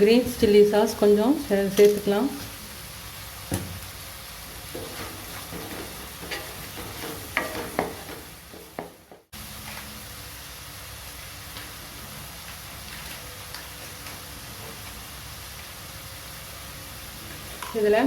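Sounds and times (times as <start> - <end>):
vegetables sizzling in a pan: 0.0 - 18.0
spatula scraping a pan: 4.6 - 9.0.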